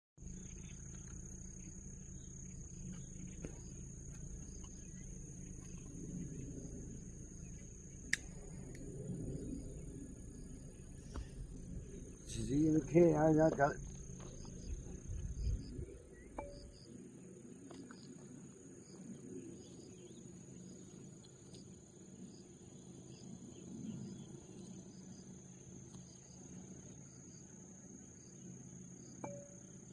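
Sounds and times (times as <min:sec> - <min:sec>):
low rumble: 0:00.2 - 0:17.6
crickets trilling: 0:00.2 - 0:29.9
insects droning: 0:00.2 - 0:29.9
low steady hum: 0:00.2 - 0:29.9.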